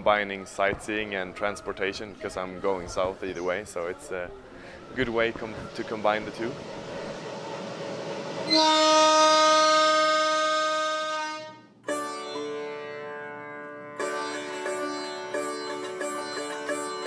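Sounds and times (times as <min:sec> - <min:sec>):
train whistle: 0:08.3 - 0:11.8
sitar music: 0:08.5 - 0:17.0.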